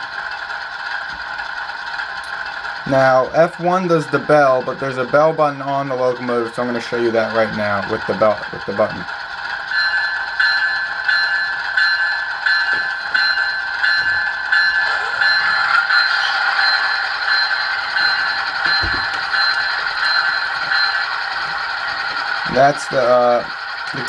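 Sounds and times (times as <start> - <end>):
electronic bell ringing: 9.7 - 24.0.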